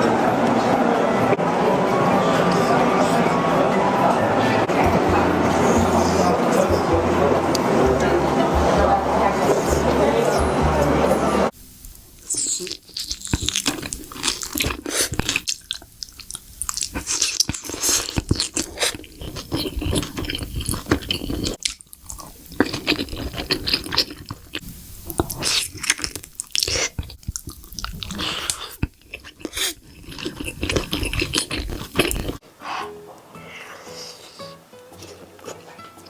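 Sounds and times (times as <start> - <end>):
crunching and chewing crisp food: 11.8 - 32.4, 33.1 - 36.0.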